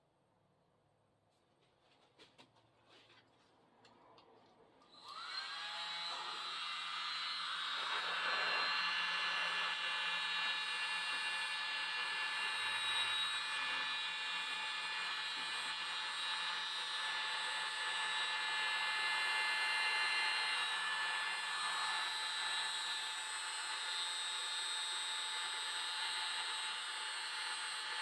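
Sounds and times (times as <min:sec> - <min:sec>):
electric blower running: 0:04.9 - 0:14.1.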